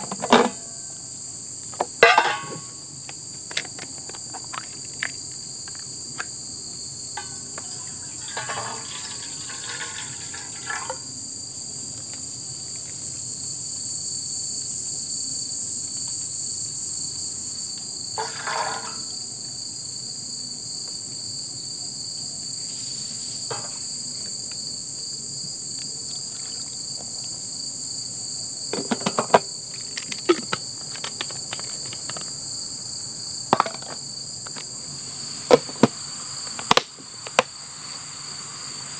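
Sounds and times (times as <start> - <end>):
crickets and insects chirring: 0.0 - 38.9
rustling scrapes: 7.2 - 11.0, 18.2 - 19.1.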